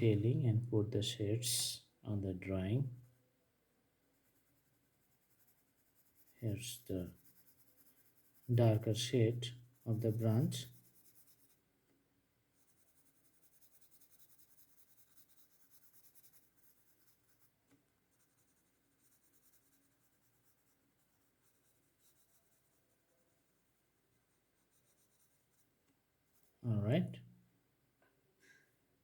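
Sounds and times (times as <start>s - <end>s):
pencil scratching on paper: 4.1s - 11.6s, 12.6s - 25.7s, 26.3s - 26.6s.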